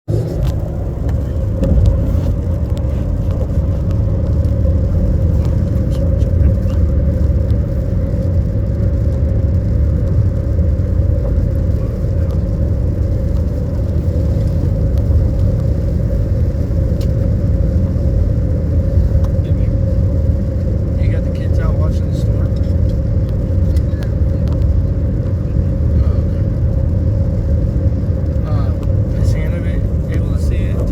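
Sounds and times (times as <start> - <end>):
constant hum: 0.0 - 30.9
road rumble inside car: 0.0 - 30.9
light ticks: 17.0 - 17.3.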